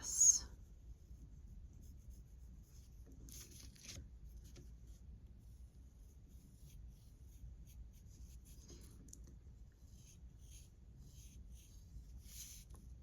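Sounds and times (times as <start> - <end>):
pencil scratching on paper: 9.6 - 13.0.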